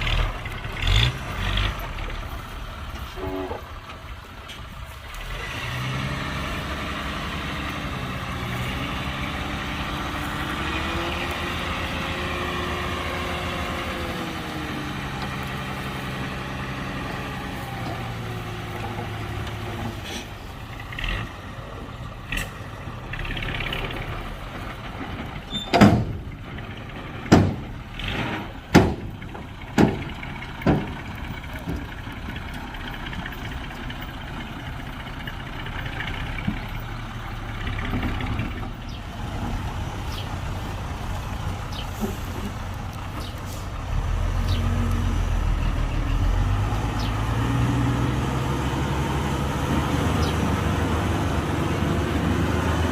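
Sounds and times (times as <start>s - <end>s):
heavy diesel engine running: 0.0s - 52.9s
sharp loud knocks: 27.3s - 27.7s, 28.7s - 29.2s, 29.8s - 31.0s.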